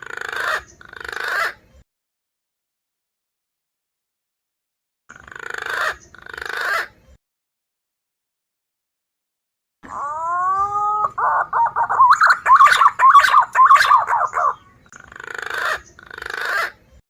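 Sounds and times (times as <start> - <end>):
pigeon whistled calls: 9.9 - 14.8
raspy bird notes: 9.9 - 14.9.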